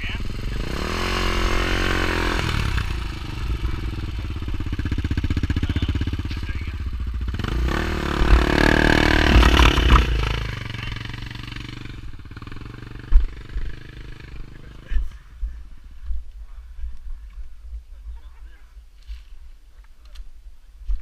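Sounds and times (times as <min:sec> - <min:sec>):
off-road vehicle engine revving: 0:00.0 - 0:15.1.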